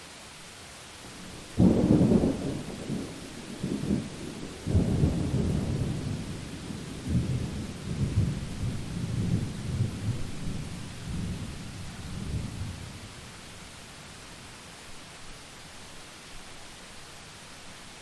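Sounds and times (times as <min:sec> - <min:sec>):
steady rain: 0:00.0 - 0:18.0
rolling thunder: 0:01.1 - 0:13.0.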